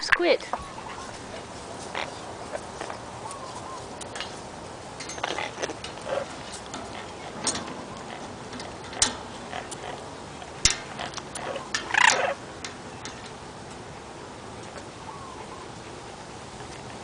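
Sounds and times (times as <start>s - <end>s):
parrots clicking: 1.9s - 13.8s.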